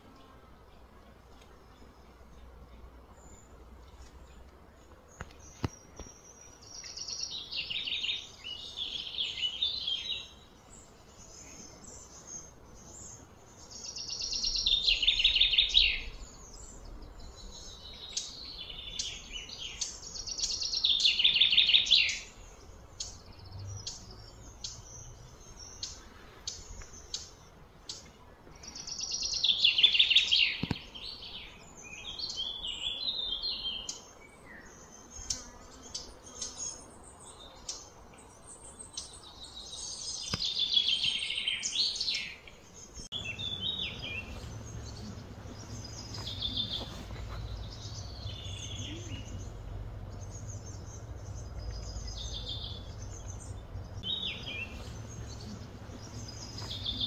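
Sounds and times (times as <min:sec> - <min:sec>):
bird singing trilled phrase: 0:43.1 - 0:57.0.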